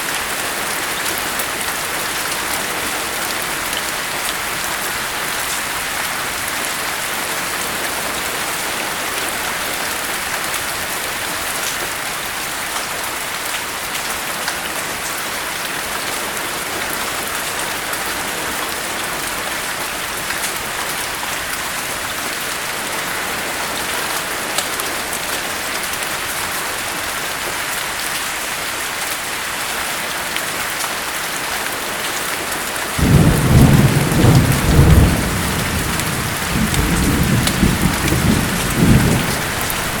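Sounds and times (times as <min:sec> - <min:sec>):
heavy rain hissing: 0:32.8 - 0:40.0
thunder rumble: 0:33.0 - 0:40.0.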